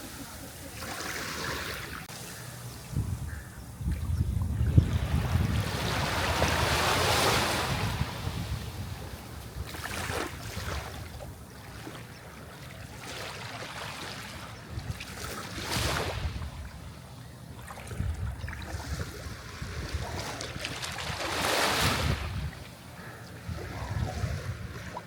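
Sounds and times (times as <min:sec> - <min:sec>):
sea waves breaking: 0:00.0 - 0:02.4, 0:04.7 - 0:16.8, 0:17.6 - 0:25.0
wind on microphone: 0:02.7 - 0:11.4, 0:14.6 - 0:17.0, 0:17.6 - 0:25.0.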